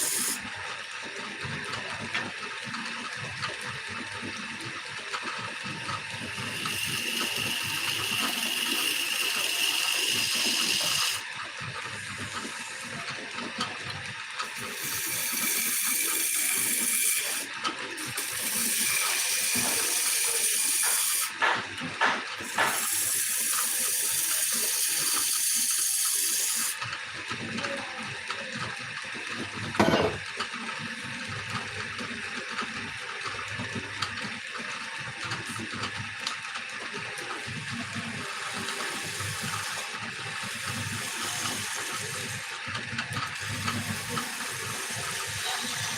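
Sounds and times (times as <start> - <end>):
turning tool cutting wood hiss: 0.0 - 0.4, 6.1 - 11.3, 11.9 - 13.1, 14.4 - 26.8, 37.9 - 42.6, 43.3 - 45.9
wood lathe running: 0.0 - 0.4, 4.2 - 28.4, 32.0 - 45.9
knock: 21.4 - 22.8, 29.8 - 30.2.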